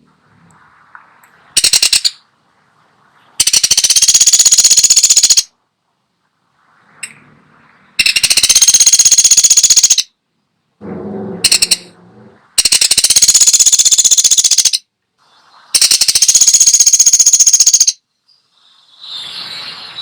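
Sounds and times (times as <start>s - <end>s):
woodpecker rattling trills: 1.6s - 2.2s, 3.4s - 5.5s, 8.0s - 10.1s, 11.4s - 11.9s, 12.6s - 14.8s, 15.8s - 18.0s.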